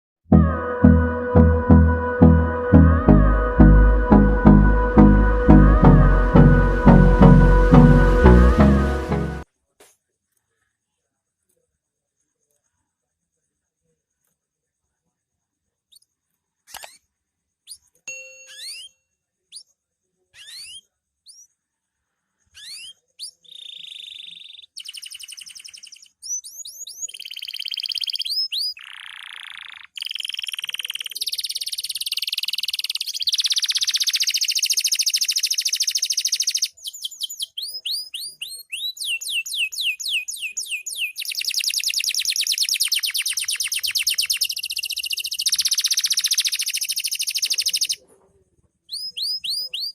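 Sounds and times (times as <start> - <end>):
canary singing: 0.3 - 9.4, 17.7 - 19.7, 20.4 - 21.5, 22.5 - 48.0, 48.9 - 49.9.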